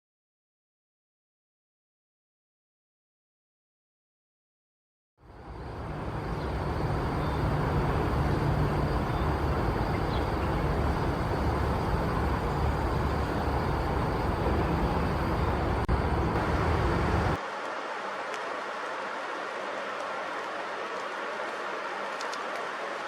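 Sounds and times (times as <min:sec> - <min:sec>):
low outdoor rumble: 0:05.2 - 0:17.4.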